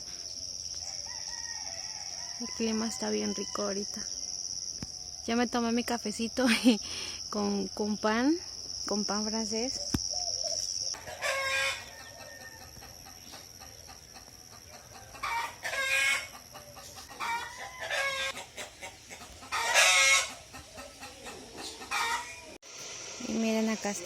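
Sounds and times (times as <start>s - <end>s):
high insect trill: 0.0s - 24.0s
roosters crowing: 0.7s - 5.2s, 10.2s - 22.6s.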